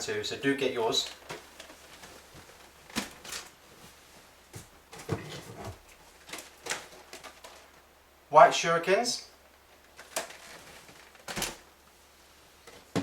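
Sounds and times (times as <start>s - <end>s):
faint packaging rustling: 9.7s - 13.0s.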